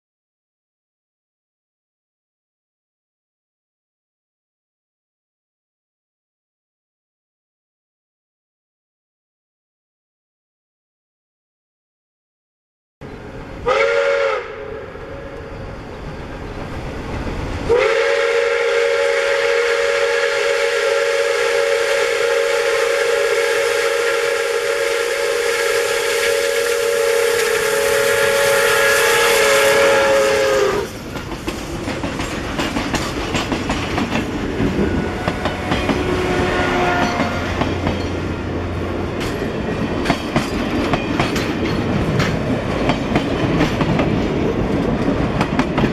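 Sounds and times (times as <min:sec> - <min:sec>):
steam locomotive whistle: 0:13.0 - 0:16.0, 0:17.6 - 0:31.1, 0:34.6 - 0:37.9
train wheels clicking on rails: 0:25.1 - 0:45.9.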